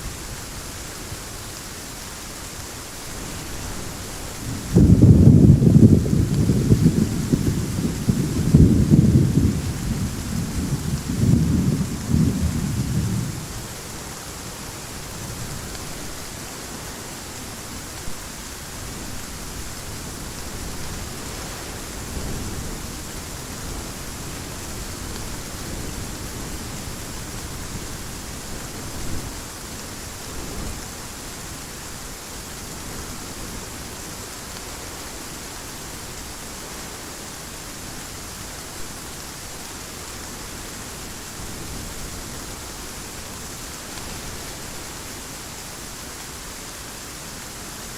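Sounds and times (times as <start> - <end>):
steady rain hiss: 0.0 - 47.9
thunder rumbling: 3.3 - 15.8.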